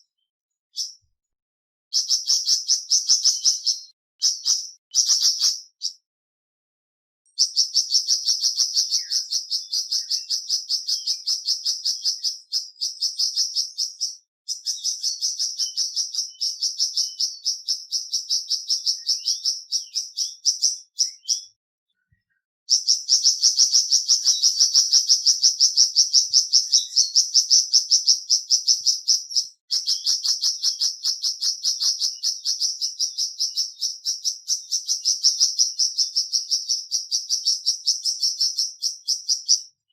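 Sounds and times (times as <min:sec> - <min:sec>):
bird trilling: 0:01.9 - 0:06.0, 0:07.3 - 0:21.5, 0:22.7 - 0:39.6.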